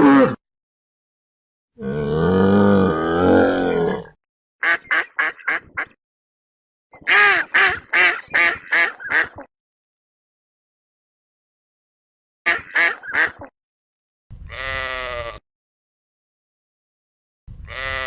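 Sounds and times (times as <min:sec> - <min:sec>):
duck quacking: 0:04.6 - 0:06.0, 0:07.0 - 0:09.5, 0:12.5 - 0:13.5.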